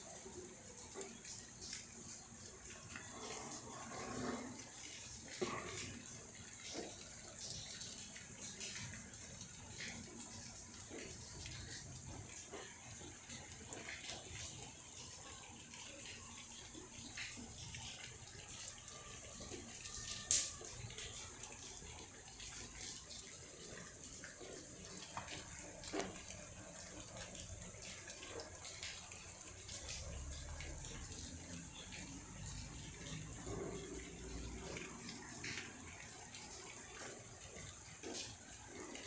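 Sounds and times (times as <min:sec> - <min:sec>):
rain falling: 0:00.0 - 0:39.0.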